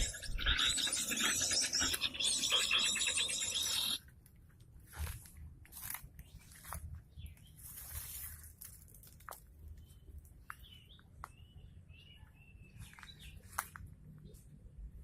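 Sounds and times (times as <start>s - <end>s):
small birds chirping: 0.0s - 4.0s, 6.1s - 8.5s, 9.6s - 14.6s.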